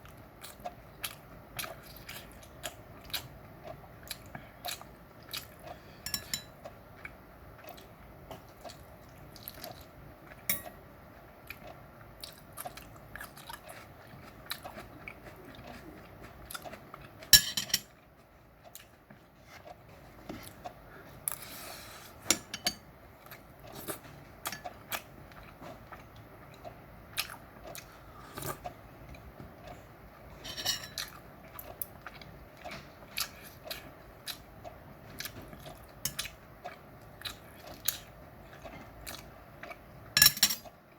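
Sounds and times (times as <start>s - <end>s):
person chewing and eating: 0.0s - 40.9s
utensils clinking on dishes: 6.0s - 6.6s, 17.4s - 18.0s, 30.4s - 31.1s, 40.2s - 40.7s.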